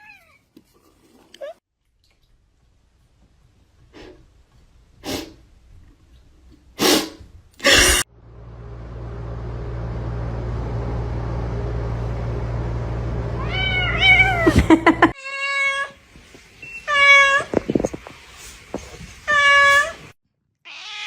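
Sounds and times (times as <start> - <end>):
steady low hum: 7.6 - 15.1
cat meowing: 13.4 - 14.5, 20.7 - 21.0.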